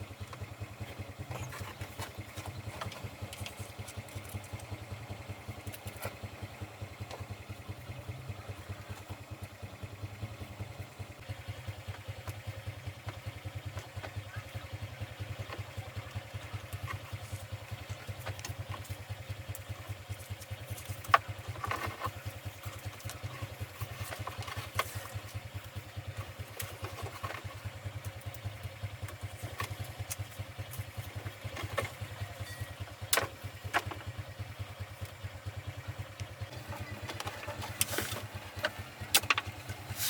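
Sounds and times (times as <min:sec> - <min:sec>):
truck engine idling: 0:00.0 - 0:40.0.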